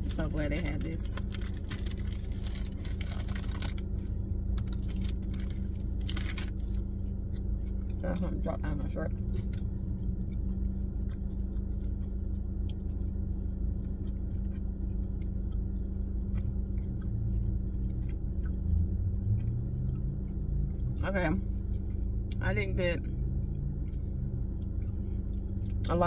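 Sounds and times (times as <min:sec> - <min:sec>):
car cabin rumble and hum: 0:00.0 - 0:26.0
closed-mouth chewing: 0:09.1 - 0:22.4.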